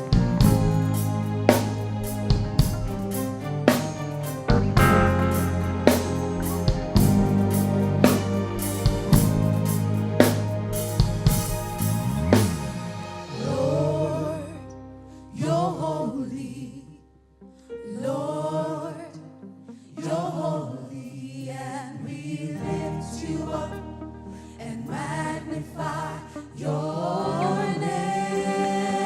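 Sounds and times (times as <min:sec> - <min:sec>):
choir singing: 0:00.0 - 0:14.7, 0:15.3 - 0:16.9, 0:17.9 - 0:19.3, 0:19.9 - 0:29.0
sustained keyboard chords: 0:00.0 - 0:16.0
drum hits: 0:00.1 - 0:13.1.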